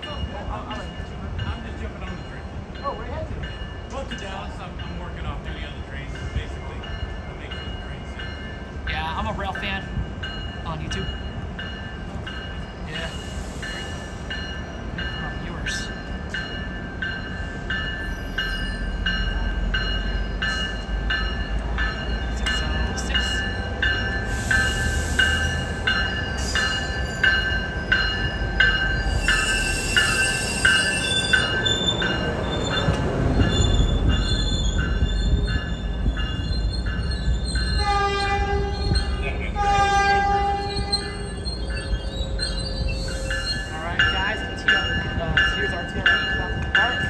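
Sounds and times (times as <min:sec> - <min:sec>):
diesel locomotive rumbling: 0:00.0 - 0:47.0
train bell ringing: 0:00.0 - 0:47.0
train horn blasts: 0:37.8 - 0:42.0.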